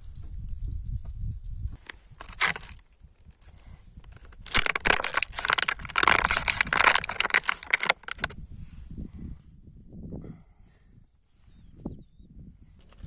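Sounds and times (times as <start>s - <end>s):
crunching under car tyre: 1.8s - 8.4s.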